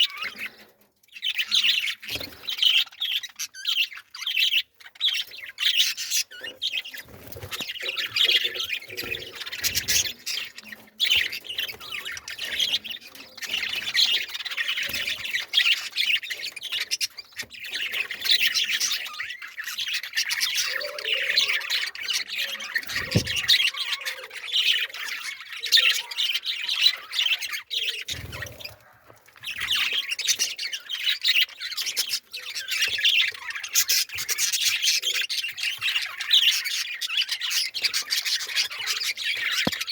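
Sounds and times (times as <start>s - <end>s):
small birds chirping and squawking: 0.0s - 39.9s.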